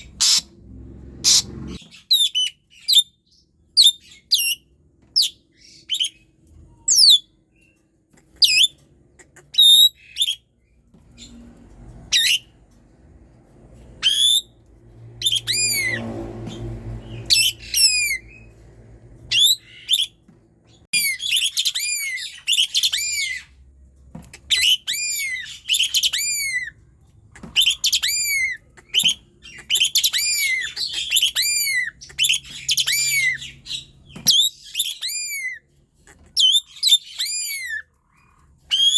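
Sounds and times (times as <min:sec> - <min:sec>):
starling singing: 0:27.4 - 0:37.8.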